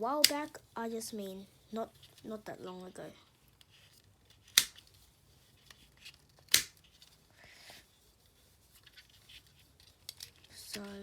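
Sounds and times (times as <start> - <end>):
faint rustle of handling: 0.5 - 11.0
plastic puzzle clicks: 4.4 - 4.8, 6.0 - 6.8.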